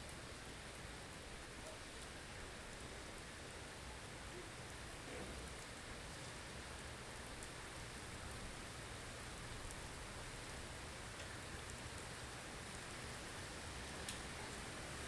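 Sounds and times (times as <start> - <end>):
faint light ticks: 0.0 - 2.1, 6.8 - 8.4, 9.5 - 12.9, 14.0 - 14.6.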